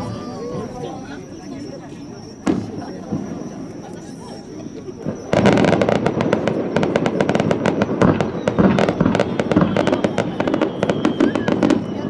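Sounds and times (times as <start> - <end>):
fireworks deep bangs: 2.3 - 12.0
fireworks crackling pops: 2.4 - 12.0.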